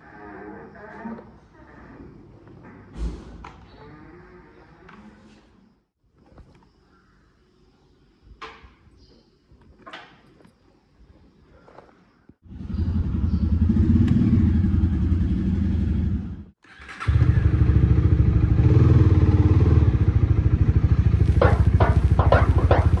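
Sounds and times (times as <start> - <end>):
motorcycle engine idling: 20.0 - 23.0.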